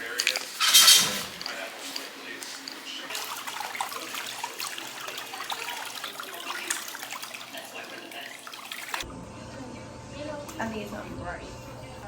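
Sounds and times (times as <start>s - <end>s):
water splashing into basin: 3.1s - 9.0s.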